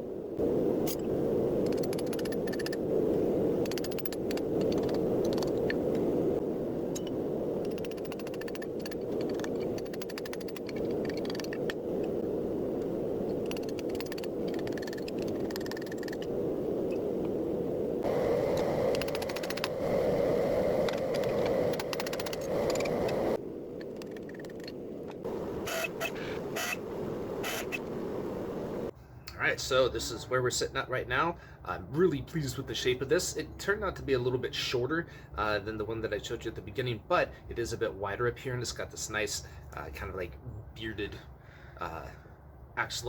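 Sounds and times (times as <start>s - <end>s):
thin steady whine: 0.0s - 23.8s
forge burner roaring: 17.8s - 23.4s.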